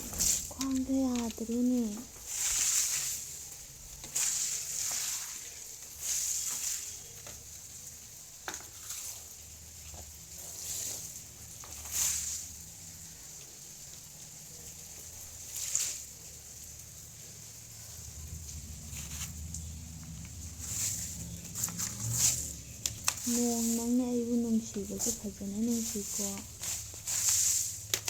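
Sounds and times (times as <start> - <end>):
hail and rain pattering: 0.0 - 28.0
low steady hum: 12.6 - 28.0.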